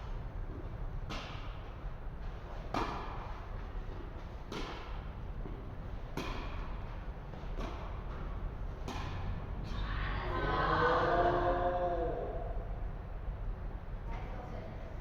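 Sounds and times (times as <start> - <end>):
racket hitting tennis ball: 1.0 - 1.7, 2.5 - 9.8.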